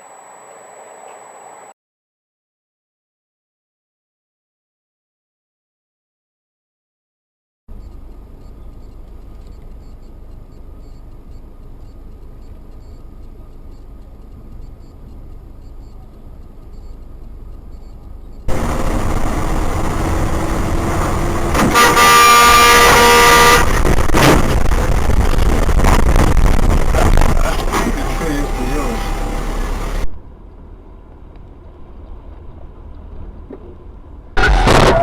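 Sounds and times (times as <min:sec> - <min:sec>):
engine noise inside moving car: 0:07.7 - 0:34.8
traffic noise: 0:07.7 - 0:34.8
car horn blaring: 0:18.5 - 0:24.6, 0:26.9 - 0:30.1, 0:34.4 - 0:35.0.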